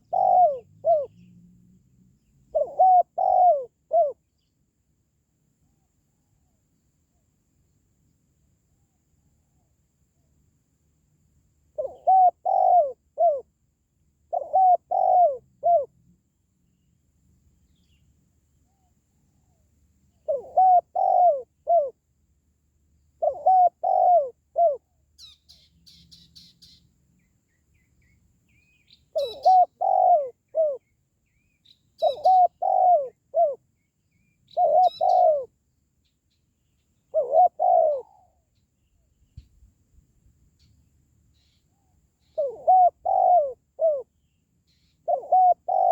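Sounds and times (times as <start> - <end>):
dove cooing: 0.0 - 1.4, 2.5 - 4.2, 11.8 - 13.5, 14.3 - 15.9, 20.2 - 22.0, 23.2 - 26.0, 29.1 - 30.8, 32.0 - 33.6, 34.5 - 35.5, 37.1 - 38.4, 42.2 - 44.1, 44.7 - 45.9
small bird chirping: 0.0 - 4.6, 16.7 - 22.0, 23.0 - 39.7, 40.5 - 45.9.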